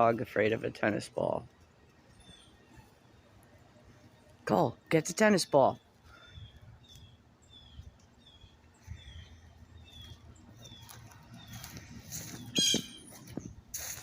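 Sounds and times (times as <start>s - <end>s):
small bird chirping: 2.0s - 4.4s, 5.3s - 13.5s.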